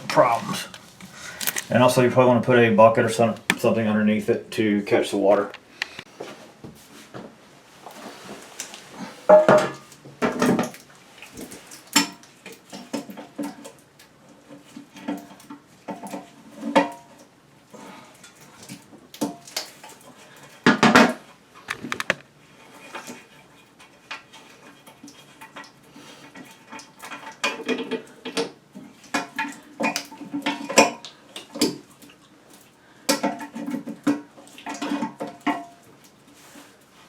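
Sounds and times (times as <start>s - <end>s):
hose unscrewing clicks and rattles: 0.1s - 1.8s, 21.6s - 22.3s.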